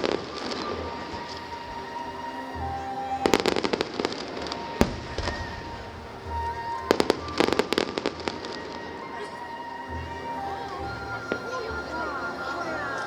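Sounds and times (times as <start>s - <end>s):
music: 0.0s - 13.0s
fireworks cracking: 3.2s - 8.1s
loud firework bang: 4.8s - 5.9s.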